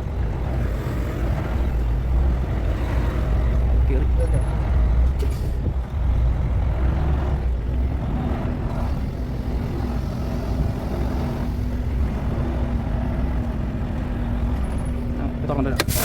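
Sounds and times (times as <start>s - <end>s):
diesel truck engine rumbling: 0.0s - 16.0s.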